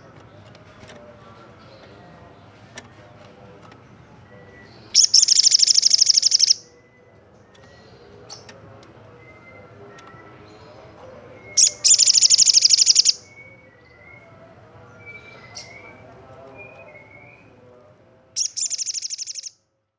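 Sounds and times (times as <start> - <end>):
faint bird chirps and whistles: 4.3 - 8.5, 9.1 - 14.4, 15.0 - 17.6, 18.4 - 19.6
bird high-pitched trill: 5.0 - 6.7, 11.5 - 13.4, 18.4 - 19.5.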